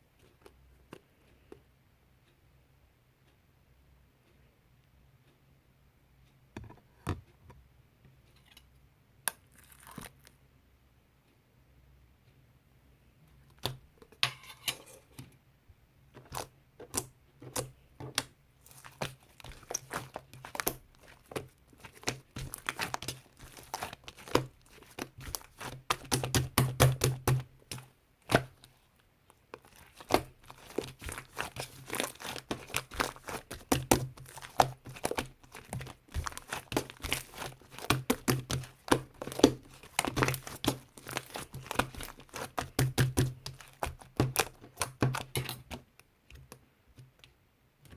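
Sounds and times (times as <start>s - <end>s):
slime squished by hand: 16.3s - 28.8s, 29.5s - 45.8s.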